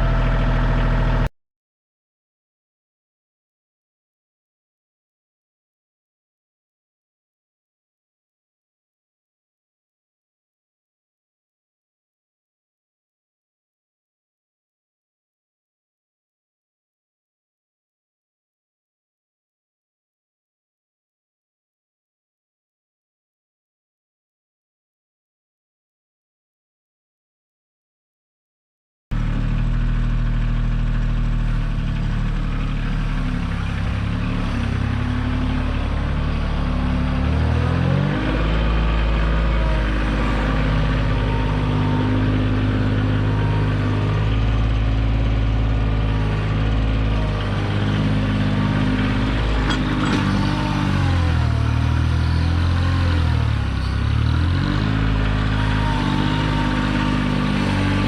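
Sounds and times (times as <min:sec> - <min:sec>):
tractor diesel engine running: 0:00.0 - 0:01.3, 0:29.1 - 0:58.0.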